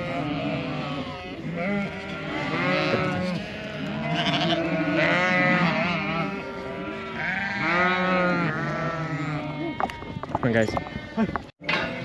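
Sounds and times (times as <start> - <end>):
sheep and lambs bleating: 0.0 - 12.0.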